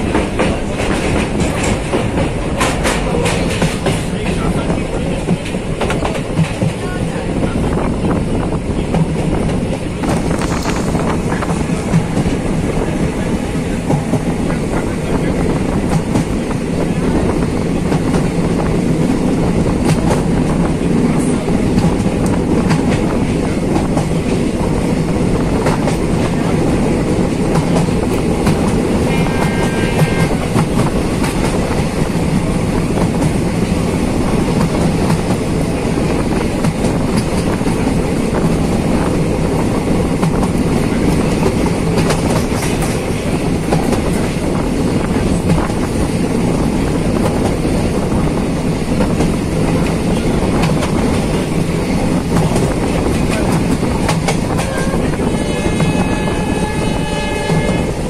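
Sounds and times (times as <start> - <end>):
rushing air: 0.0 - 29.2
train wheels rumbling on track: 0.0 - 58.0.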